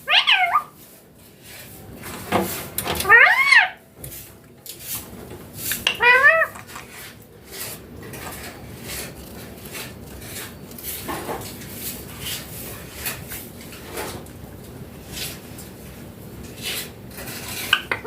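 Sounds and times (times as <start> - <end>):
parrot call: 0.0 - 0.8, 3.0 - 3.8, 5.9 - 6.6.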